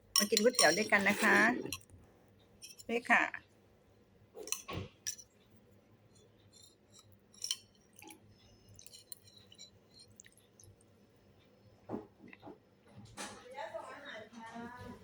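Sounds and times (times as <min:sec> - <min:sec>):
spoon and chopsticks clinking on bowl: 0:00.0 - 0:01.9, 0:02.6 - 0:03.0, 0:04.4 - 0:05.3, 0:06.5 - 0:08.2, 0:08.8 - 0:10.3.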